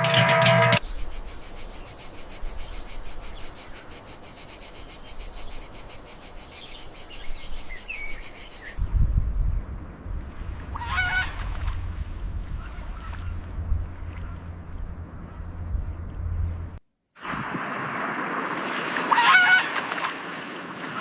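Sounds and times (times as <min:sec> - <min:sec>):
music: 0:00.0 - 0:00.8
low rumble: 0:08.8 - 0:16.8.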